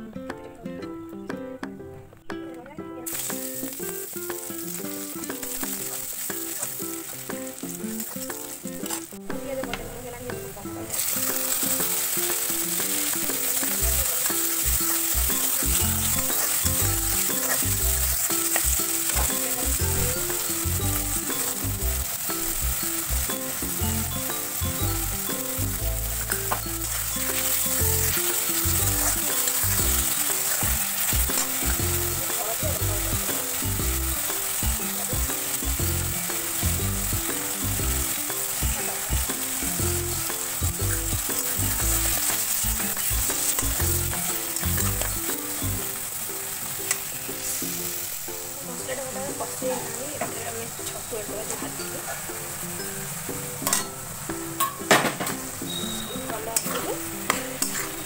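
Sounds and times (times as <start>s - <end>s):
vegetables sizzling in oil: 3.0s - 58.0s
spatula stirring against pan: 10.8s - 48.1s, 56.6s - 58.0s.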